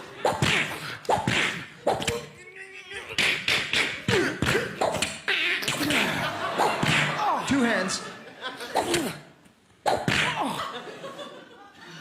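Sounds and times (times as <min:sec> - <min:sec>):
man beatboxing clicks and pops: 0:00.3 - 0:02.3, 0:03.1 - 0:06.0
squeaky vocal noises: 0:01.3 - 0:06.3.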